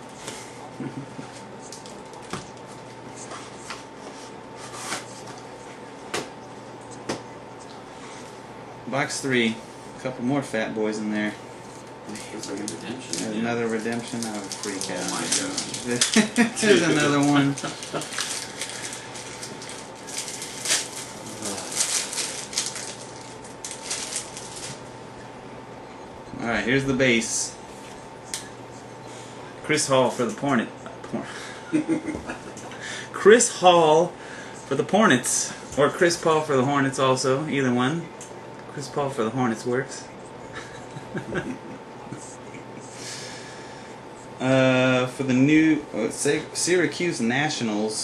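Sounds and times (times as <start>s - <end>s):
faint steady hum: 0.0s - 48.0s
cards shuffling and rustling: 12.1s - 24.8s.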